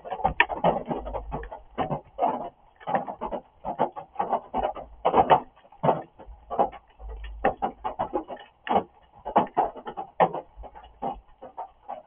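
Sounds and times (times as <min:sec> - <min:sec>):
heavy rain drops on hard surface: 0:00.0 - 0:12.0.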